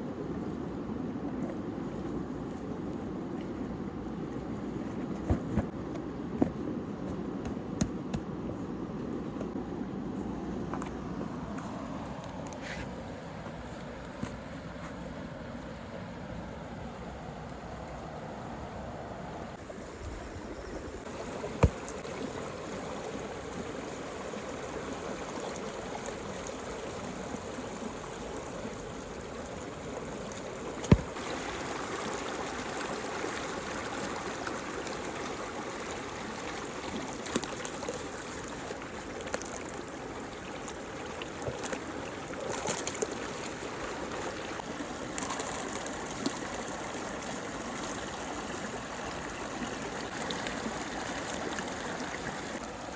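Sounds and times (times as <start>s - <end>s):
water swirling and trickling: 19.5s - 52.9s.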